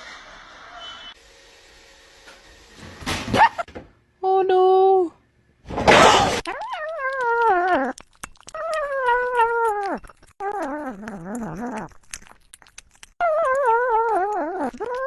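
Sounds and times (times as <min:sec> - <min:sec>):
pet wailing: 0:06.3 - 0:12.4, 0:13.1 - 0:15.0.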